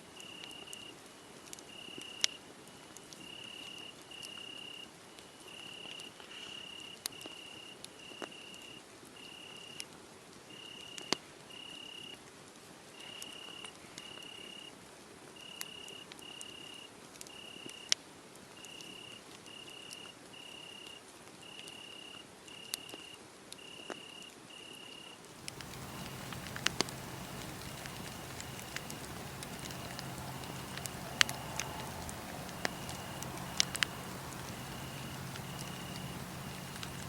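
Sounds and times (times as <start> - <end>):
wood fire popping: 25.3 - 37.0
cricket chirping: 25.4 - 37.0.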